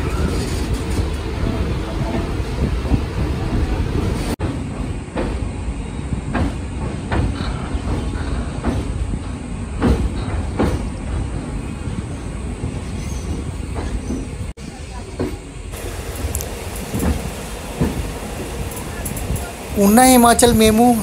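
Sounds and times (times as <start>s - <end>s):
train wheels rumbling on rail: 0.0s - 21.0s
wheels clacking on track: 0.0s - 21.0s.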